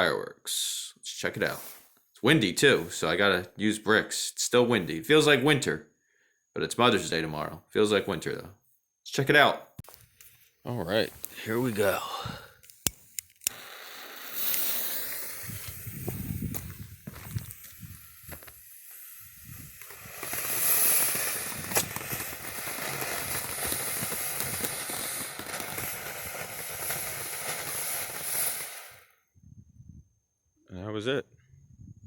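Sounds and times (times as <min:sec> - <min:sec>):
firework crackles: 0:01.4 - 0:03.1, 0:10.0 - 0:29.2
fountain firework hissing: 0:01.5 - 0:02.0, 0:13.4 - 0:29.2
wind rumbling on microphone: 0:15.2 - 0:18.6, 0:19.2 - 0:27.0, 0:29.4 - 0:30.2, 0:31.4 - 0:32.0.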